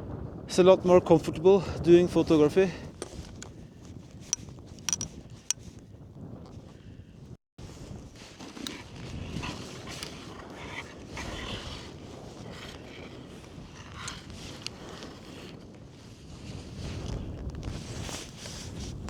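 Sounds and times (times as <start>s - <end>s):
wind on microphone: 0.0s - 19.0s
sharp clicks: 4.3s - 5.1s.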